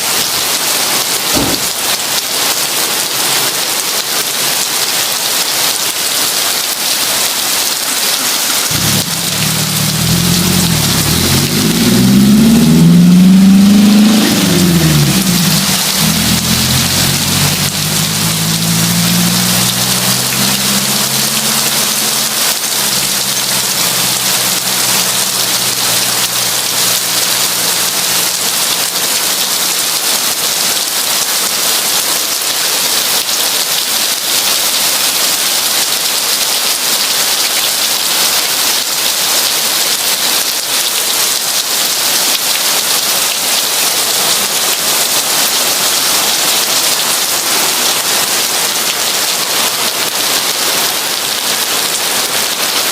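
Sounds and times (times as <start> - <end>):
heavy rain falling: 0.0 - 52.9
low rumble: 8.7 - 26.8.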